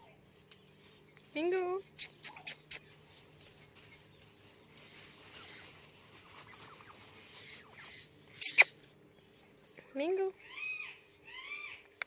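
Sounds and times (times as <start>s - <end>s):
parrot soft bird sounds: 1.8s - 3.0s, 6.5s - 9.0s.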